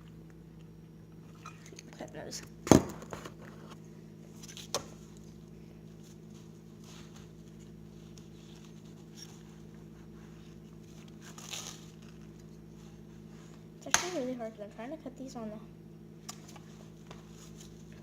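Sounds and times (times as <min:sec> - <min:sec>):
steady low hum: 0:00.0 - 0:18.0
soft rustle: 0:05.9 - 0:13.7.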